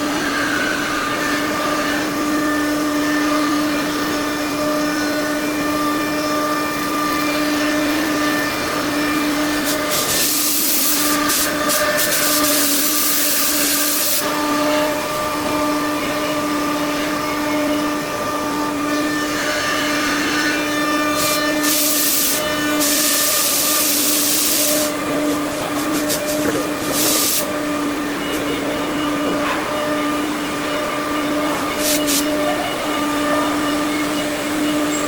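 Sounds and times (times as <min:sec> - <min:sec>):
machine spindle whine: 0:00.0 - 0:35.0
bursts of hissing: 0:09.6 - 0:14.3, 0:21.2 - 0:25.0, 0:25.9 - 0:27.5, 0:31.8 - 0:32.3.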